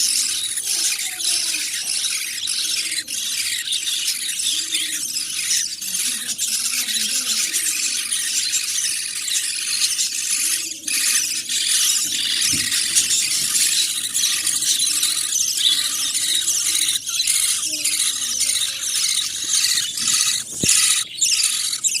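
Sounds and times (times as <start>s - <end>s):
budgerigar chicks squealing: 0.0s - 22.0s.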